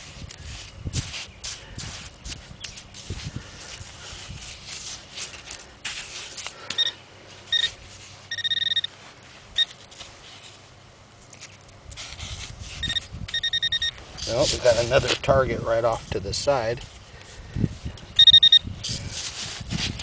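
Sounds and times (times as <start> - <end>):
sand scraping and rustling: 0.0 - 13.1, 14.0 - 18.0, 18.8 - 20.0
metal detector beeps: 6.7 - 8.9, 9.6 - 9.8, 12.7 - 14.0, 18.2 - 18.7.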